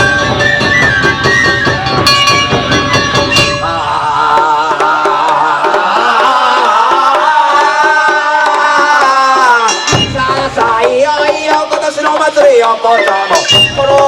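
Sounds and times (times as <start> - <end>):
wavering melodic line: 0.0 - 3.8
heavy taiko drumming: 0.0 - 14.0.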